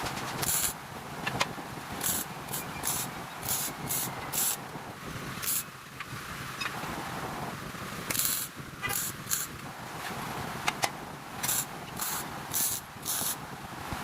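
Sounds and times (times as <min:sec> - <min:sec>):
short hissing bursts: 0:00.4 - 0:00.8, 0:01.9 - 0:05.8, 0:08.0 - 0:09.6, 0:11.4 - 0:13.5.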